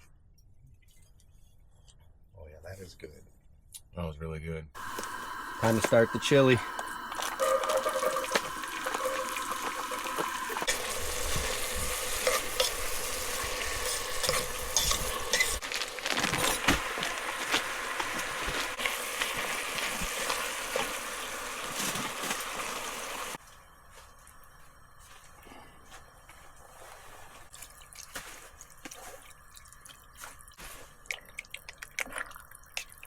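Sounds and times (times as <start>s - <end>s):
food sizzling in a pan: 4.8s - 25.2s
utensil scraping a pan: 7.4s - 15.6s.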